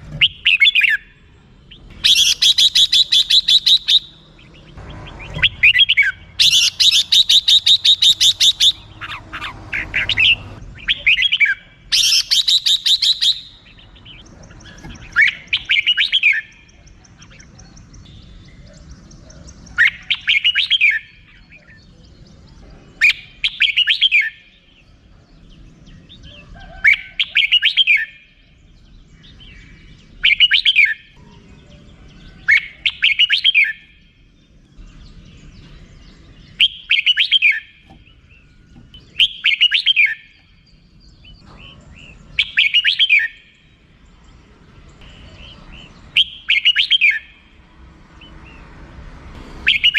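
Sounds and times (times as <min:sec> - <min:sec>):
bird whistled phrases: 0:02.0 - 0:04.3, 0:05.2 - 0:09.2, 0:09.9 - 0:13.8, 0:14.7 - 0:18.7, 0:19.7 - 0:21.8, 0:23.0 - 0:24.5, 0:26.7 - 0:28.3, 0:30.2 - 0:31.1, 0:32.4 - 0:34.0, 0:36.5 - 0:37.8, 0:39.1 - 0:40.4, 0:42.4 - 0:43.5, 0:45.0 - 0:47.4, 0:49.6 - 0:49.9.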